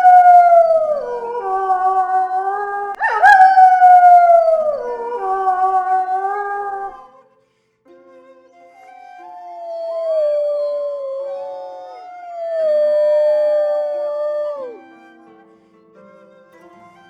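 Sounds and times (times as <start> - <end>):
wolves howling: 0.0 - 7.1, 9.4 - 14.9
soft background music: 5.7 - 17.0.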